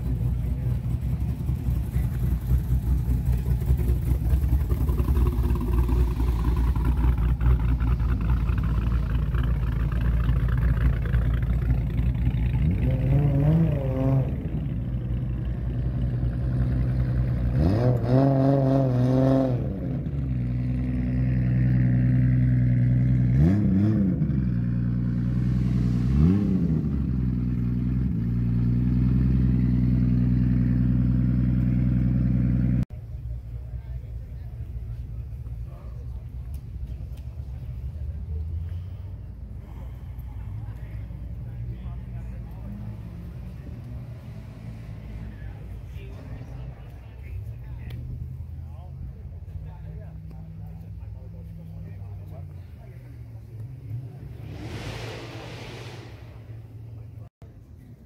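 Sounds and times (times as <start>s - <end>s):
car engine idling with lumpy rumble: 0.0s - 18.0s, 19.6s - 23.4s, 24.0s - 54.5s
car engine revving: 0.0s - 32.9s, 49.8s - 57.3s.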